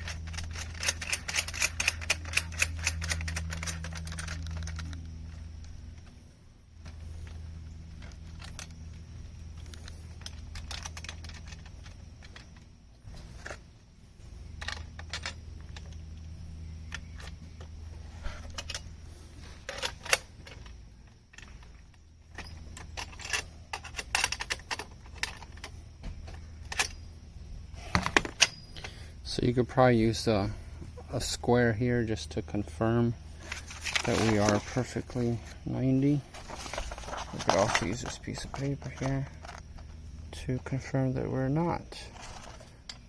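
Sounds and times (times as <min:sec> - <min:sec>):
steady low hum: 0:00.0 - 0:43.0
metallic clinks of tools: 0:28.3 - 0:29.0.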